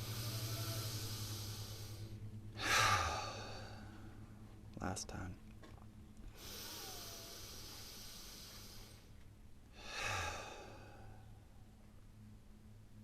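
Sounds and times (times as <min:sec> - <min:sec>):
person breathing deeply: 0:00.0 - 0:04.3, 0:06.3 - 0:11.4
person sighing: 0:02.6 - 0:03.9.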